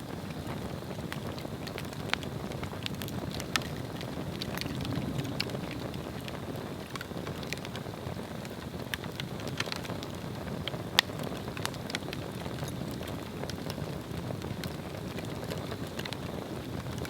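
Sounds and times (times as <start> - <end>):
fire crackling and popping: 0.0 - 17.0
low rush of flame: 0.0 - 17.0.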